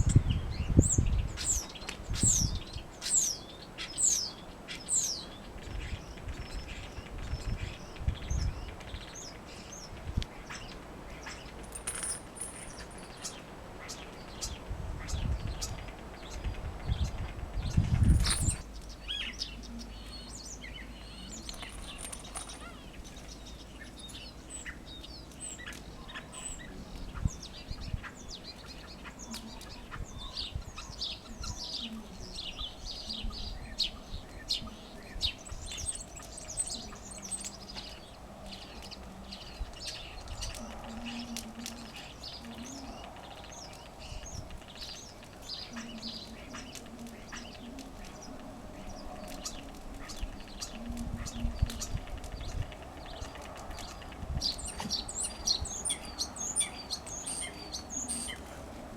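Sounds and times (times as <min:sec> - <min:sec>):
starling singing: 0:17.7 - 0:58.7.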